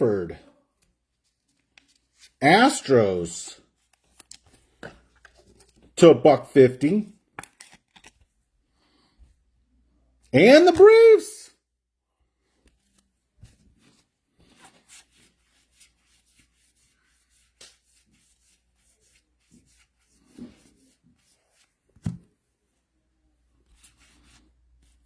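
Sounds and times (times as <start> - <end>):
trading cards sliding and rubbing: 1.2 - 2.4, 12.8 - 22.2, 23.7 - 25.0.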